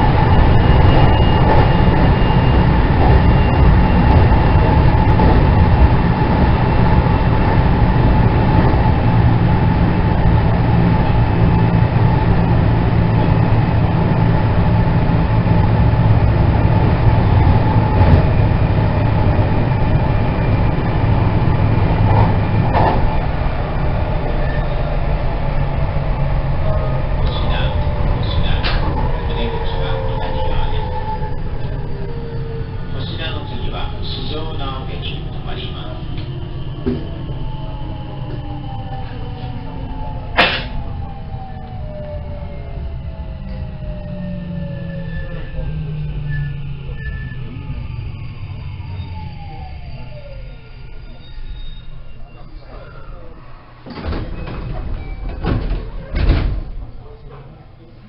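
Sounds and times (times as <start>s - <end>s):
train wheels rumbling on track: 0.0s - 57.7s
rail clicks: 21.8s - 23.3s, 26.6s - 30.8s.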